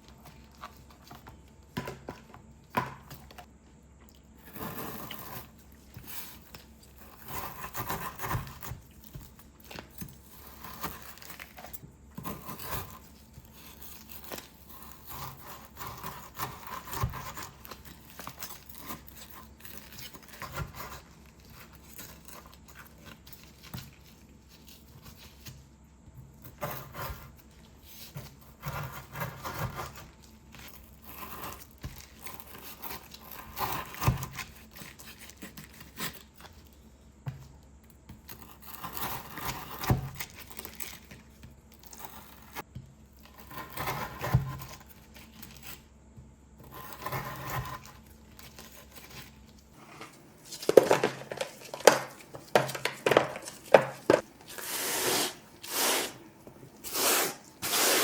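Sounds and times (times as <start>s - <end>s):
scraping and rubbing: 46.6s - 58.0s.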